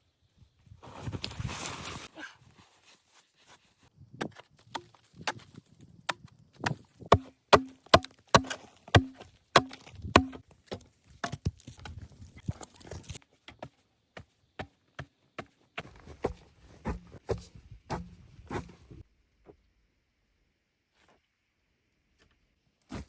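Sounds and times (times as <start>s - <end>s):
axe chopping wood: 6.1s - 11.5s, 15.8s - 18.7s.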